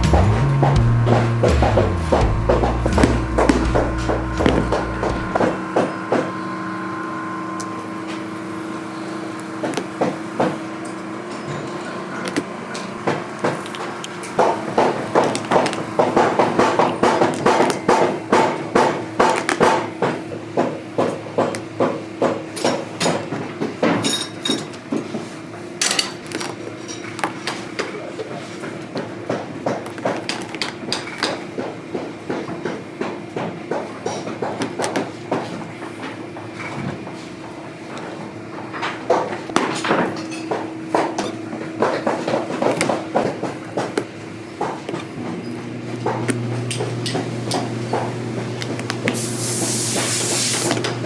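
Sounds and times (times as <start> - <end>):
hammer knocking on boot: 0.0 - 5.9.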